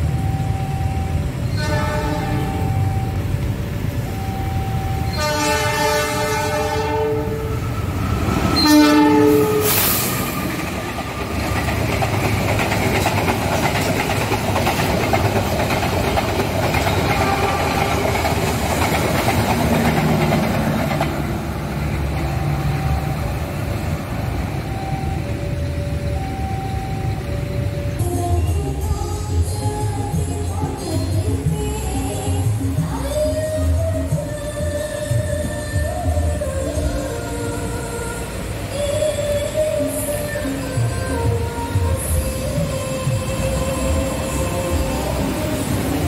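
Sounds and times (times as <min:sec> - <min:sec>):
train rumbling and clattering past: 0:00.0 - 0:46.0
train horn blasts: 0:01.5 - 0:02.8, 0:05.1 - 0:07.7, 0:08.5 - 0:10.4, 0:17.0 - 0:18.2.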